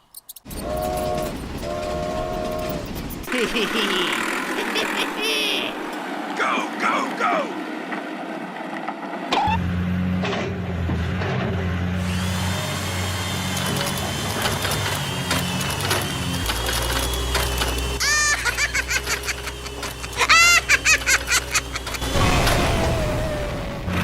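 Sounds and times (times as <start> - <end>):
small electric motor humming: 12.0 - 22.1.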